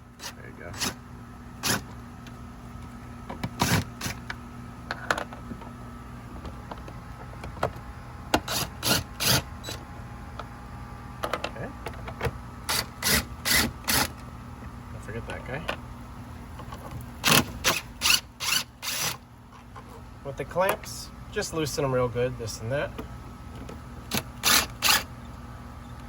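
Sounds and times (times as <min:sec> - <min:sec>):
steady low hum: 0:00.0 - 0:26.0
cordless screw gun bursts: 0:17.2 - 0:19.2, 0:24.1 - 0:25.1.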